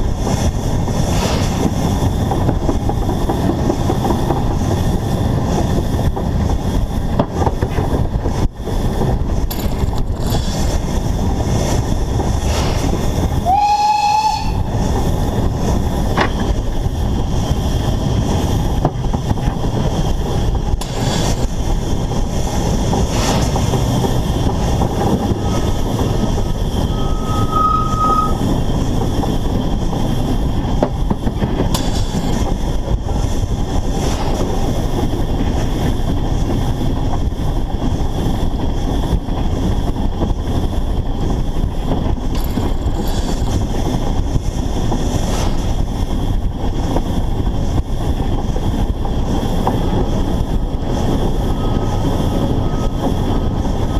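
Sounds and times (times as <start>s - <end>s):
steam locomotive wheels on rails: 0.0s - 53.9s
high squeal: 25.3s - 28.5s, 51.5s - 53.9s.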